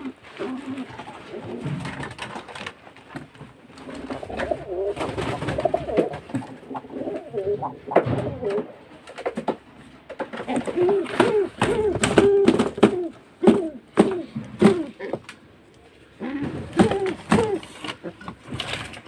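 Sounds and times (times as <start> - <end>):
pigeon cooing grunts: 0.0 - 2.3, 3.9 - 8.9, 10.4 - 15.3, 16.1 - 18.4.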